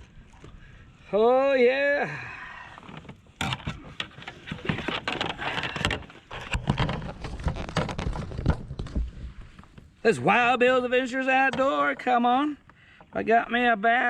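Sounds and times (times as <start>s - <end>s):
fish flopping: 2.2s - 10.0s
knocks and taps against kayak: 11.4s - 13.2s.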